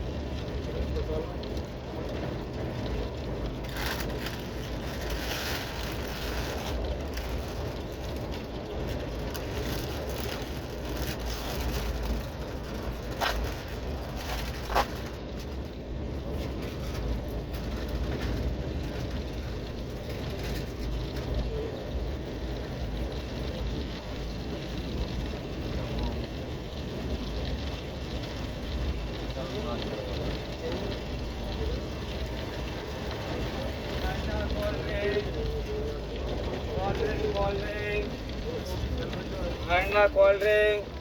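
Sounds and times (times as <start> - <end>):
train rumble inside coach: 0.0 - 41.0.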